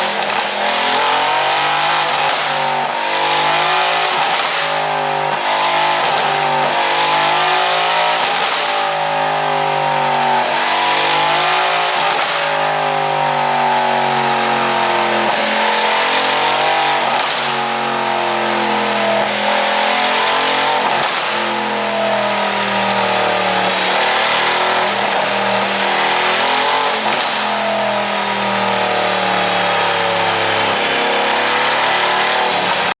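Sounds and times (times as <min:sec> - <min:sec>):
exhaust pops and cracks: 0:01.5 - 0:02.8, 0:03.9 - 0:04.9, 0:08.2 - 0:09.0, 0:12.0 - 0:12.7, 0:17.1 - 0:17.8, 0:20.9 - 0:21.8, 0:27.0 - 0:27.7.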